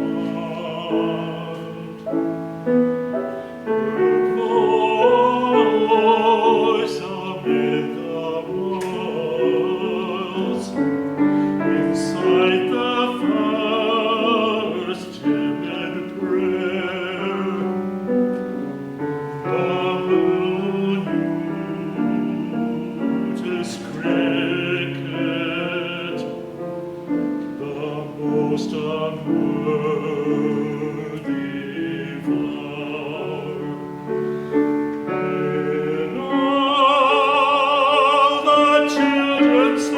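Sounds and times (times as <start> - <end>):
classical singer with vibrato: 0.0 - 39.9
piano accompaniment: 0.0 - 39.9.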